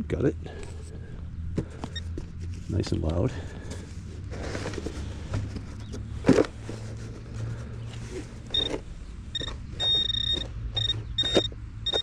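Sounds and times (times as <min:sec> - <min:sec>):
pinpointer electronic beeps: 0:08.5 - 0:08.7, 0:09.3 - 0:12.0.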